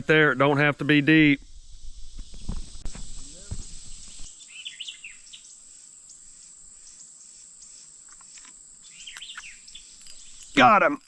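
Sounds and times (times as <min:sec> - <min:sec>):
high-pitched insect chorus: 0:00.1 - 0:11.0
short bird chirps: 0:03.2 - 0:05.5, 0:08.9 - 0:10.6.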